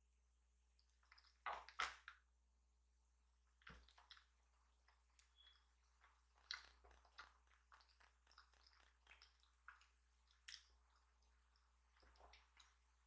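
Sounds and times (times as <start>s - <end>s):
chewing mouth clicks and smacks: 1.0s - 2.1s, 3.6s - 12.9s.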